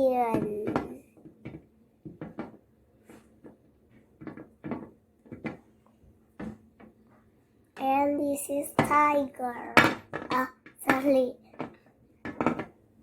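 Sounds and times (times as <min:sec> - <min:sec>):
toy figures clicking and knocking: 0:00.0 - 0:02.6, 0:03.4 - 0:05.7, 0:08.6 - 0:12.8.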